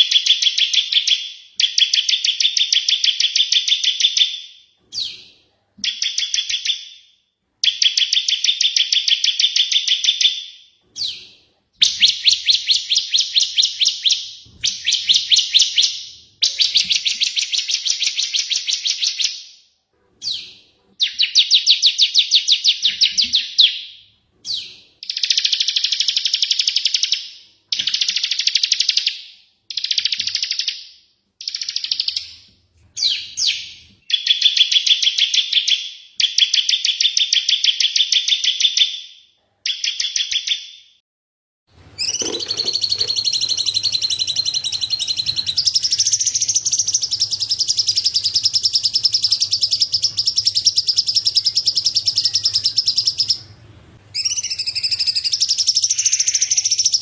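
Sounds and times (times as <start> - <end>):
fast bird chattering: 42.0 - 53.4.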